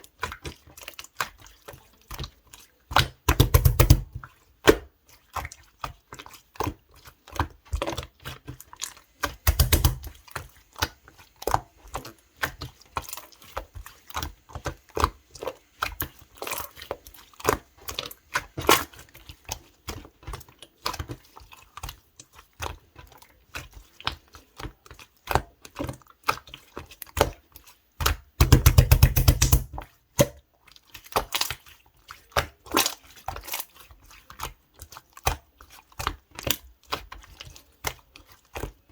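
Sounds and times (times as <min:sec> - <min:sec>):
slime clicking and popping: 0:03.0 - 0:04.8, 0:09.4 - 0:10.1, 0:28.4 - 0:30.4.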